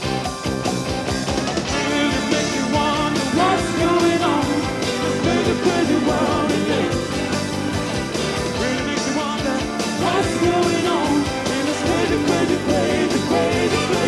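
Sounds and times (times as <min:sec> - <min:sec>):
rock band playing live: 0:00.0 - 0:14.0
man singing: 0:01.7 - 0:07.1, 0:08.5 - 0:14.0.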